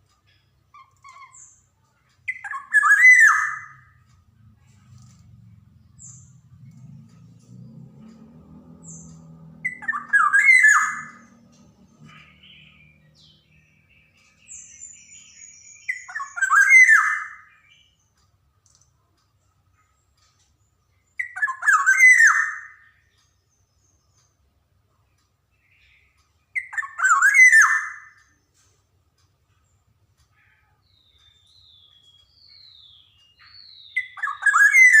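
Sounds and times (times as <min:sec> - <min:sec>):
oriole singing whistled notes: 0:00.4 - 0:04.1, 0:08.8 - 0:18.2, 0:20.9 - 0:24.4, 0:25.5 - 0:28.4, 0:30.8 - 0:35.0.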